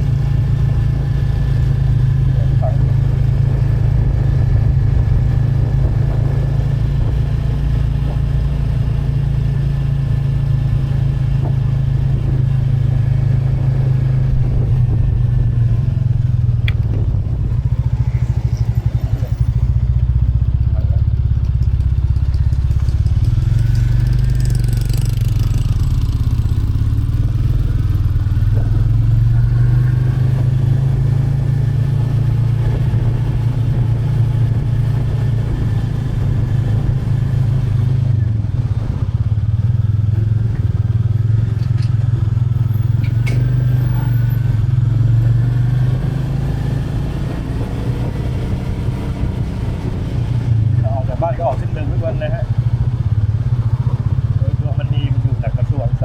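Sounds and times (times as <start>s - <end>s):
motorcycle engine thumping: 16.2s - 18.4s, 19.4s - 30.9s.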